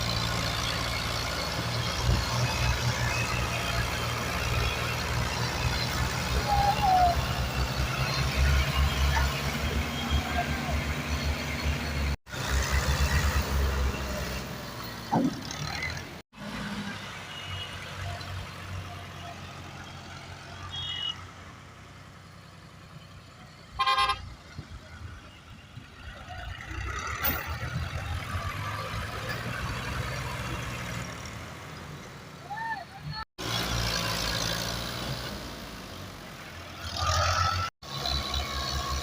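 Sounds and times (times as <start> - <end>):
tractor engines rumbling: 0.0 - 39.0.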